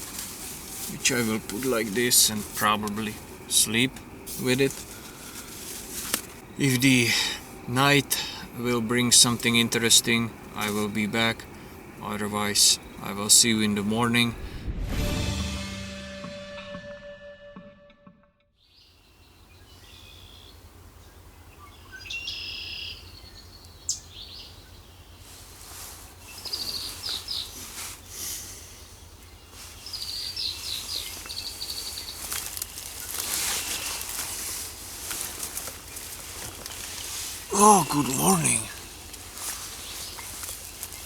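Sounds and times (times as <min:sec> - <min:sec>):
birds chirping and trilling: 0:26.2 - 0:27.8, 0:28.7 - 0:34.4, 0:35.1 - 0:41.0.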